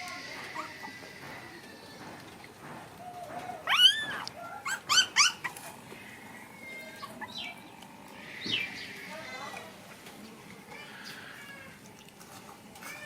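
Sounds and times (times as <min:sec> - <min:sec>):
puppy yelping: 0:03.1 - 0:05.7, 0:06.7 - 0:07.6.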